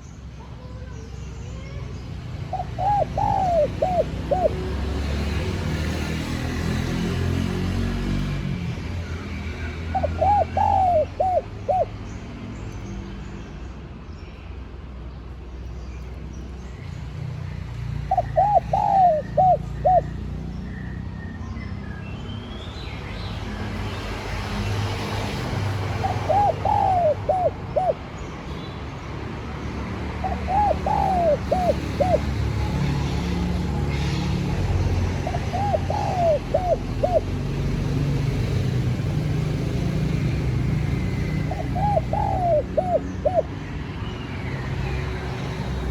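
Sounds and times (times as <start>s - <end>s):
dove cooing: 2.5s - 5.4s, 9.9s - 11.9s, 18.1s - 20.2s, 25.7s - 28.1s, 30.2s - 34.2s, 35.1s - 37.4s, 41.1s - 43.6s.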